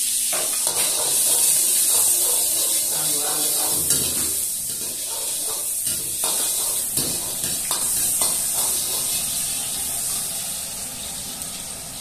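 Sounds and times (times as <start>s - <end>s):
garlic sizzling in oil: 0.0s - 12.0s
metal ladle scraping a wok: 0.5s - 9.4s.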